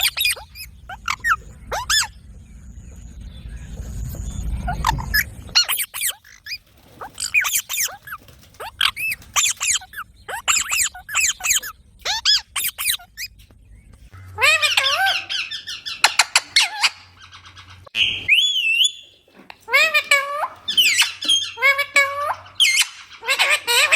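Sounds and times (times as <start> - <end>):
parrots chirping and squawking: 0.0 - 2.3, 3.9 - 23.9.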